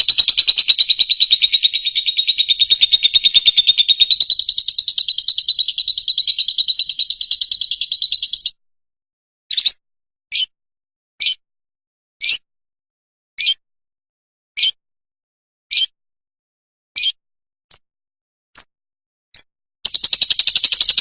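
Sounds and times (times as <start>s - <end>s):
short high bird calls: 0.0s - 8.5s
lovebird high chirps: 0.0s - 8.6s, 9.5s - 10.5s, 19.9s - 21.0s.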